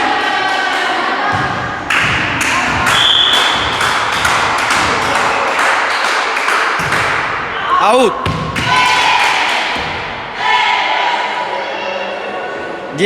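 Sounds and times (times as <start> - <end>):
thuds and knocks echoing: 1.3 - 5.9, 6.5 - 7.5, 8.2 - 10.4.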